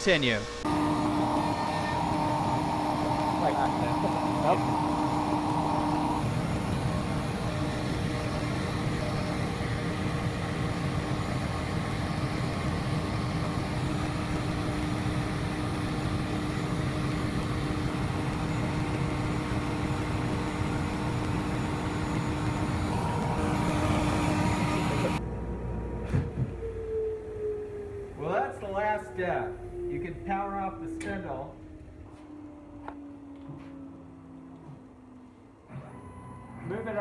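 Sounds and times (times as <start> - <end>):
cnc router spindle whining: 0.0 - 37.0
shop vacuum running: 0.0 - 37.0.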